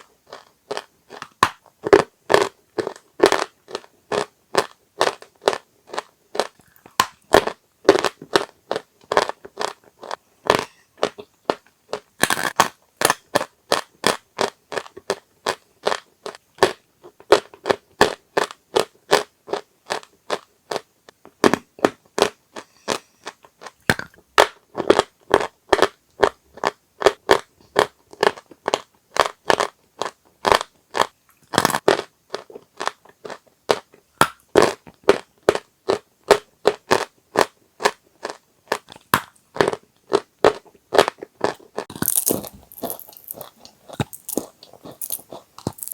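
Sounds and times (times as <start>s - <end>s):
chalk crunching: 41.9s - 45.9s.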